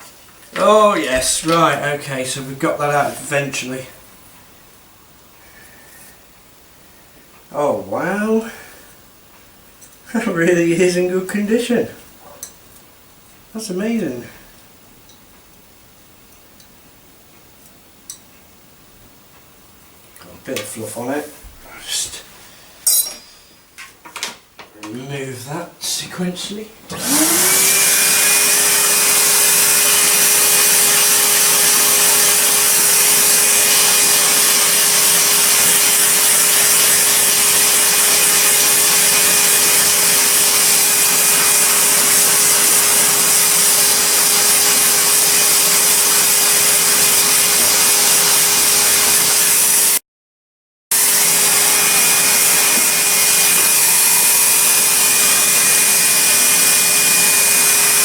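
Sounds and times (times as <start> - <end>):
vacuum cleaner motor whine: 26.9 - 50.0, 50.9 - 58.0.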